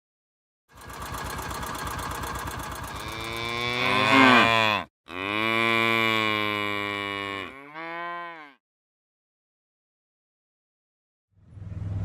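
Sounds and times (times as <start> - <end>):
cow mooing: 2.9 - 8.6.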